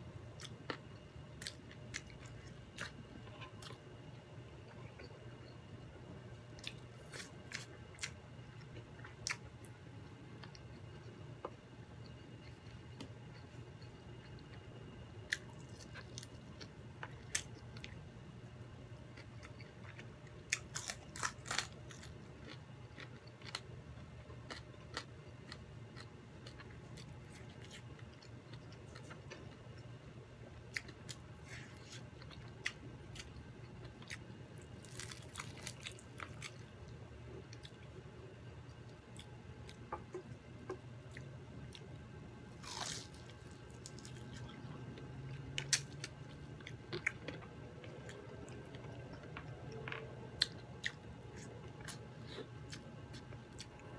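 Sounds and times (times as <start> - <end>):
faint low hum: 0.0 - 53.9
crunchy chewing: 19.1 - 29.9, 30.7 - 37.9, 42.5 - 53.9.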